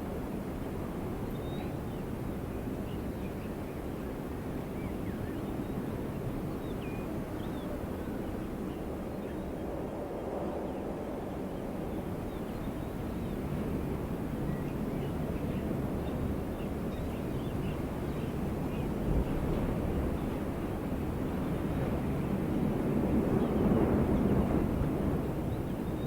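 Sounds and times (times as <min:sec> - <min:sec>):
low rush of wind: 0:00.0 - 0:26.0.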